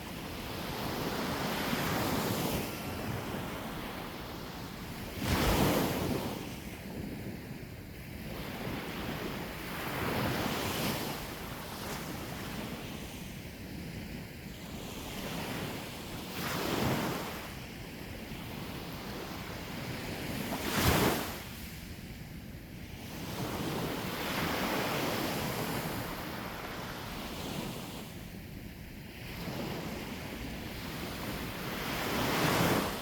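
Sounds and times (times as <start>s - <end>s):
waves breaking on shore: 0.0s - 6.6s, 18.7s - 21.7s, 29.1s - 33.0s.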